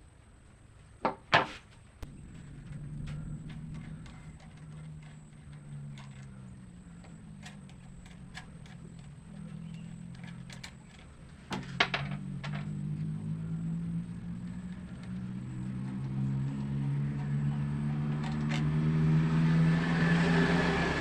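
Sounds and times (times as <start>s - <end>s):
clatter of knocks: 1.1s - 13.2s
motor humming: 2.0s - 21.0s.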